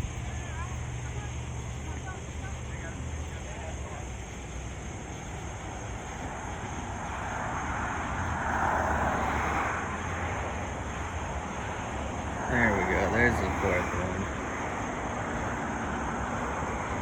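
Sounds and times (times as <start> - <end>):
vehicle passing by: 5.7 - 17.0.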